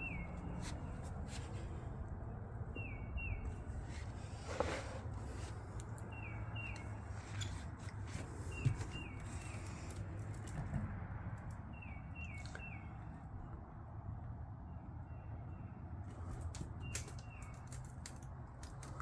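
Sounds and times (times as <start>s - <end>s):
bird chirping: 0.0s - 1.1s, 2.7s - 3.8s, 6.0s - 7.6s, 11.7s - 13.2s, 14.7s - 17.7s.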